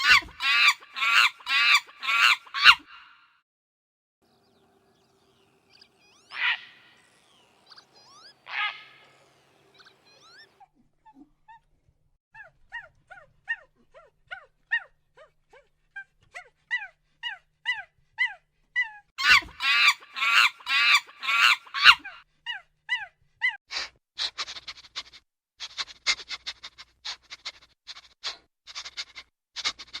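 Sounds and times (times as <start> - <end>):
loud animal cries: 0.0 - 3.0, 5.6 - 10.6, 19.2 - 22.2
short high falling animal calls: 5.3 - 10.6, 19.2 - 22.2.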